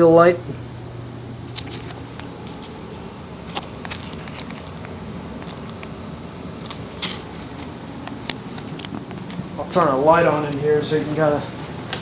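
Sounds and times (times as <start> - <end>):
low room noise: 0.0 - 12.0
small sharp clicks and crackles: 3.4 - 6.0, 6.6 - 9.9.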